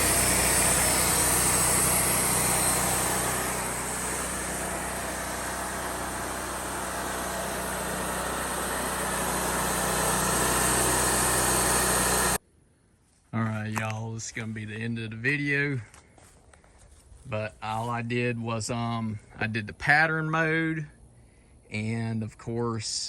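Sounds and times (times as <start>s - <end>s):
bandsaw sawmill running: 0.0s - 12.4s.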